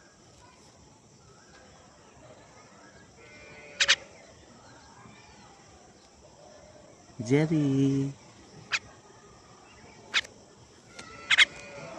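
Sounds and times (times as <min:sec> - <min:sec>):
faint chirping: 0:00.0 - 0:11.9
bird sharp calls: 0:03.3 - 0:04.4, 0:08.6 - 0:09.0, 0:09.7 - 0:10.3, 0:10.9 - 0:11.9.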